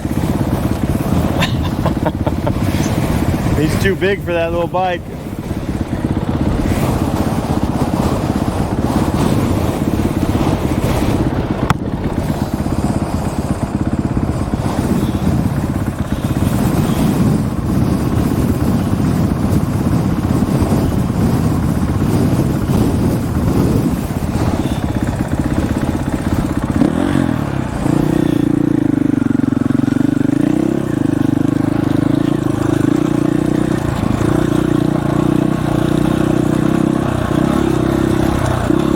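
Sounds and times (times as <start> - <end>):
wind noise on microphone: 0.0 - 29.8
dirt bike engine running: 0.0 - 38.9.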